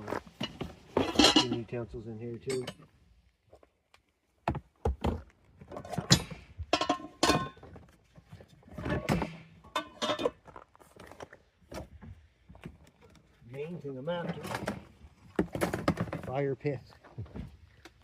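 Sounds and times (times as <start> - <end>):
pots and utensils clattering: 0.3 - 1.8, 5.8 - 7.8, 8.8 - 10.5.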